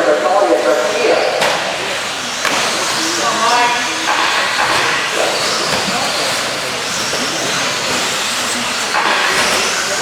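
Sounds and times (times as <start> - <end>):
rc trucks motors whining: 0.6 - 10.0.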